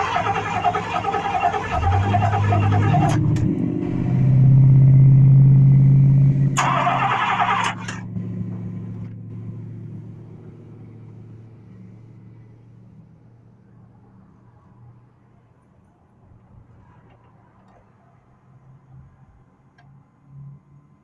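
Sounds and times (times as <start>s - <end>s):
car engine cranking: 0.0s - 11.2s.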